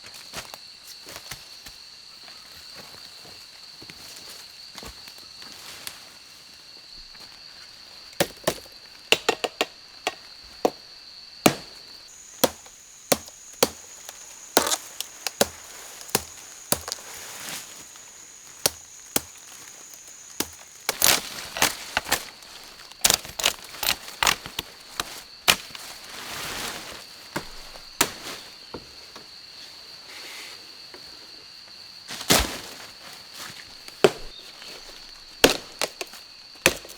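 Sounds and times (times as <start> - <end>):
high insect drone: 0.0 - 36.9
chopping wood: 8.2 - 10.8, 11.4 - 17.1, 18.6 - 22.3, 23.0 - 25.8, 27.4 - 28.4, 34.0 - 34.4, 35.4 - 36.9.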